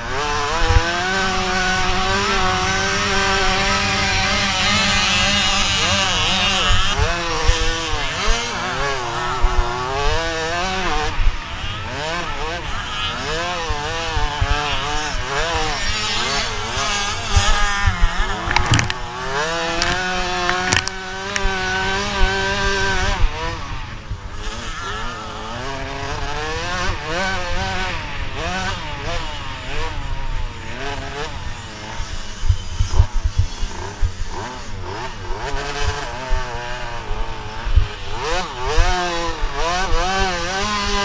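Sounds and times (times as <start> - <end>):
dirt bike engines revving: 0.0 - 41.0
sharp knocks: 18.4 - 19.0.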